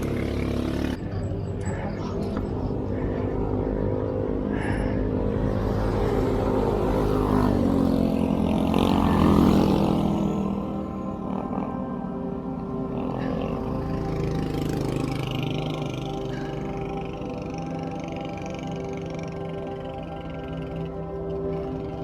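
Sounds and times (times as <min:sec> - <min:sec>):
vehicle engine accelerating: 0:00.0 - 0:22.0.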